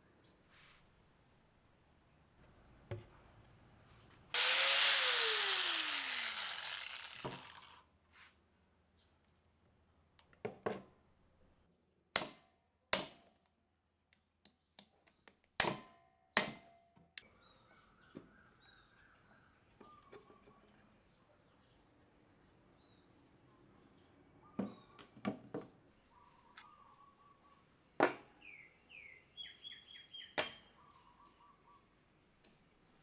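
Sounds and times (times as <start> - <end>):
power tool whining down: 4.4 - 7.8.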